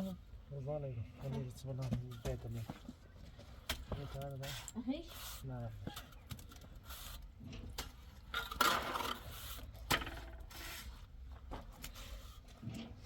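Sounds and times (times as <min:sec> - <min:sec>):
hand tools scraping: 0:03.7 - 0:13.0.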